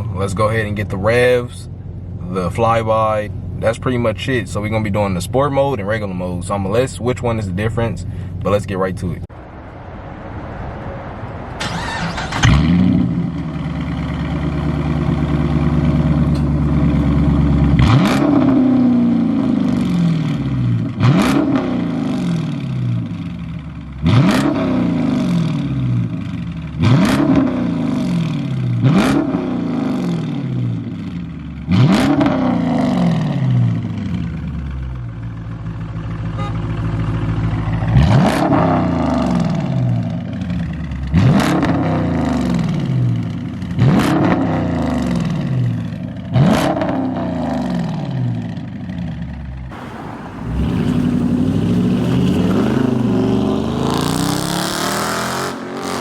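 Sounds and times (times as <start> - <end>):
car engine revving: 10.0 - 30.9, 37.8 - 48.6, 49.7 - 56.0.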